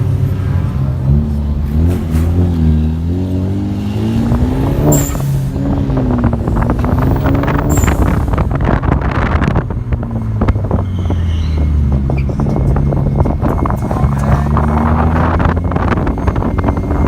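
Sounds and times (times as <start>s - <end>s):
car engine revving: 0.0s - 17.0s
high-pitched squeaks: 4.8s - 5.6s, 7.0s - 8.4s, 10.7s - 14.6s.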